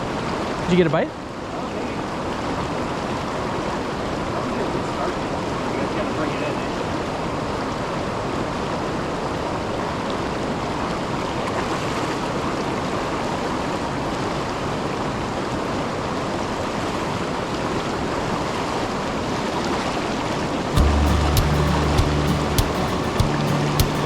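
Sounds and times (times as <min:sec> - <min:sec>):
waterfall rushing: 0:20.8 - 0:24.0.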